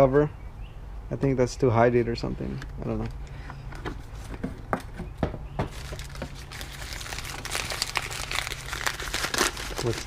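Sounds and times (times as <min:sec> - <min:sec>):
packaging crinkling: 0:05.7 - 0:10.0.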